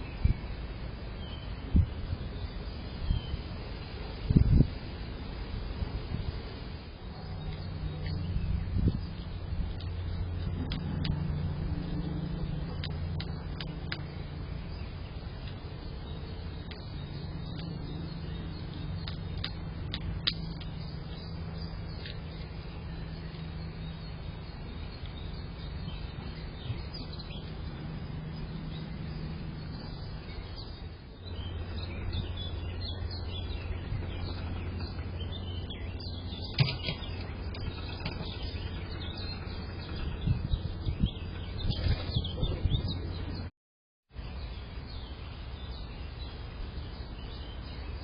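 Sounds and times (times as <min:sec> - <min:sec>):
small birds chirping: 0:00.0 - 0:43.5, 0:44.2 - 0:48.0
steady low hum: 0:00.0 - 0:43.5.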